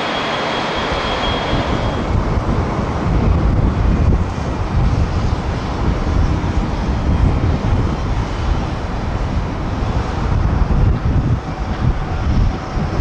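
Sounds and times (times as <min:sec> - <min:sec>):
jet engines rumbling: 0:00.0 - 0:13.0
wind buffeting microphone: 0:00.0 - 0:13.0.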